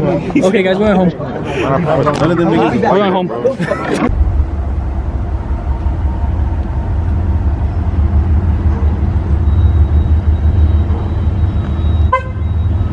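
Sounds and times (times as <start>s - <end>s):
car engine and road noise: 3.5s - 12.9s.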